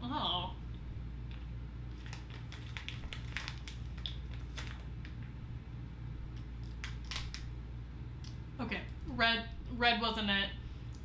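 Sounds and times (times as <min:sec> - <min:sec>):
steady low hum: 0:00.0 - 0:11.0
chewing gummy candy: 0:01.3 - 0:04.6
plastic bag crinkling: 0:01.9 - 0:05.3, 0:06.6 - 0:07.5.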